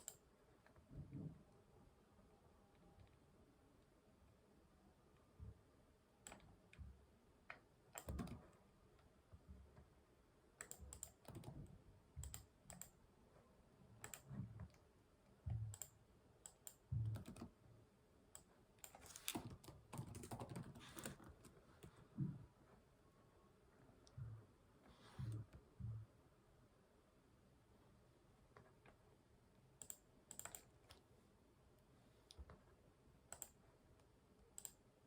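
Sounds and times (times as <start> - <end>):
typing on computer keyboard: 0.0 - 0.2, 7.9 - 8.4, 10.6 - 11.6, 12.2 - 13.0, 14.0 - 14.8, 15.6 - 17.6, 18.4 - 21.9, 29.8 - 31.0, 33.3 - 33.6.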